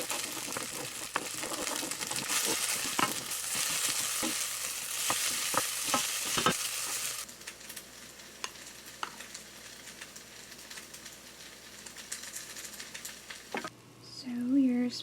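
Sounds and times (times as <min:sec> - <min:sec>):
spatula knocking and scraping: 0:00.0 - 0:06.6
food sizzling in a pan: 0:00.0 - 0:13.7.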